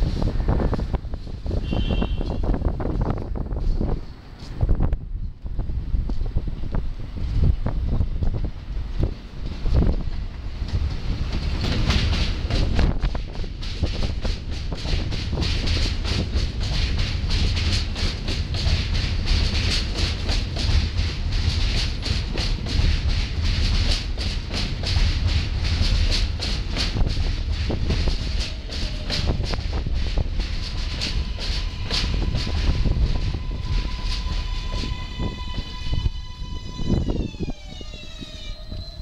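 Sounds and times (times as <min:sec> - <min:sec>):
subway train rumble and hiss: 0:00.0 - 0:39.0
rapid wheel clicks on rail joints: 0:08.2 - 0:36.2.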